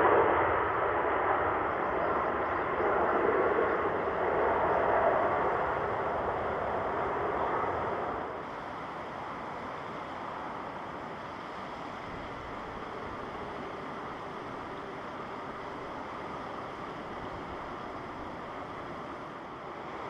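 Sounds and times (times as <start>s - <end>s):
jet airliner noise: 0.0s - 20.0s
wind-like ambient rush: 0.0s - 20.0s.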